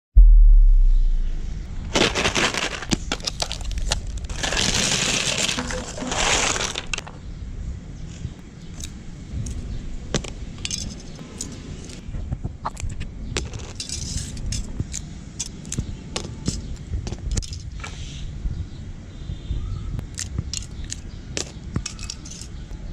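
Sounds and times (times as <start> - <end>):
dense rattling: 1.7 - 7.2
sharp clicks and crunches: 1.8 - 7.2, 8.2 - 12.0, 12.6 - 17.9, 20.0 - 22.7
foil coins clinking in grinder: 2.0 - 7.1, 21.9 - 22.5.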